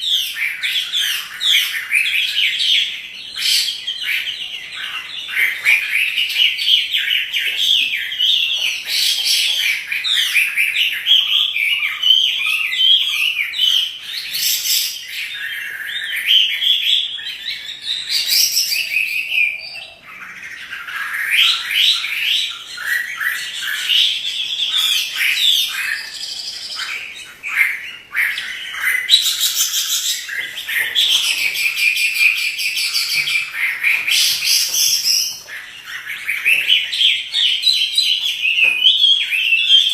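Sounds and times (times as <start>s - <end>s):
songbird whistling rapid phrases: 10.0s - 39.9s.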